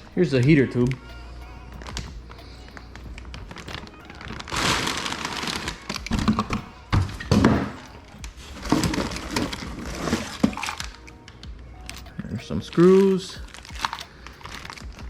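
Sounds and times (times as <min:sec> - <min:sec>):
packing material rustling: 0:01.8 - 0:11.1, 0:11.8 - 0:15.0
thuds and knocks of parts: 0:06.0 - 0:11.0.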